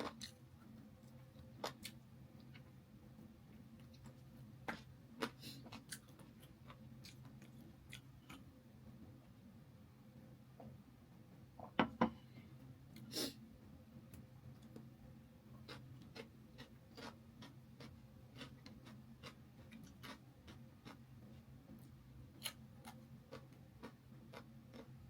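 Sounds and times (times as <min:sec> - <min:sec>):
person chewing: 0:00.0 - 0:00.4, 0:01.0 - 0:02.7, 0:03.8 - 0:08.5, 0:15.6 - 0:25.0.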